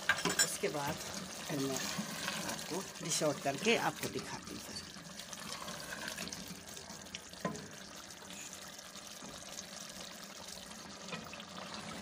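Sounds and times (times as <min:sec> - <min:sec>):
liver frying in oil: 0:00.0 - 0:12.0.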